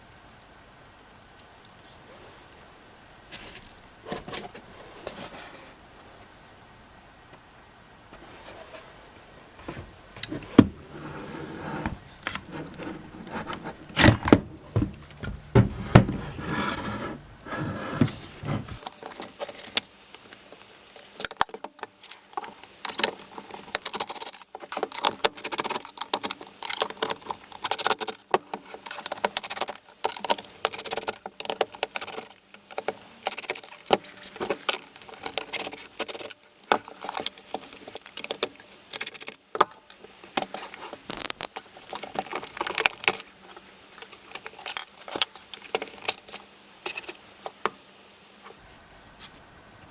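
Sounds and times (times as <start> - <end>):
plastic parts clicking and rattling: 18.8 - 47.8.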